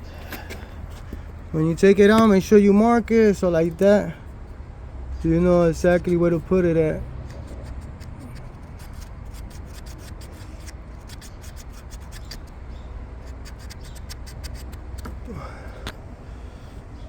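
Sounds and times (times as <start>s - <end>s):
steady low hum: 0.0s - 17.0s
hands rubbing and scraping parts: 7.2s - 16.0s.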